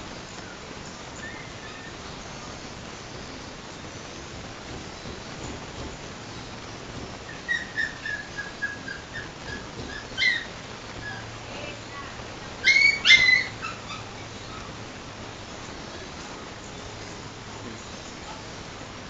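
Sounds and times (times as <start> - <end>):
dog yelping: 7.3 - 11.3, 12.6 - 14.8
dog crying high-pitched: 12.6 - 14.6
dog whimpering: 12.6 - 14.8.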